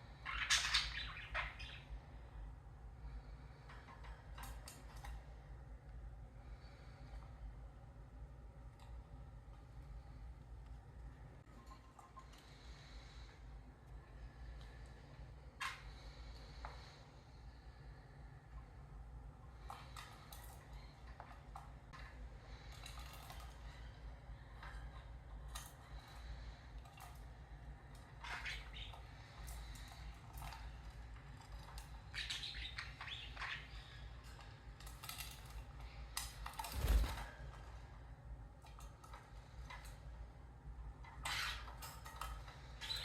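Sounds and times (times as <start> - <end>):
parrots chirping: 0.0 - 2.1, 28.1 - 30.1, 31.8 - 34.2
low steady hum: 0.0 - 43.0.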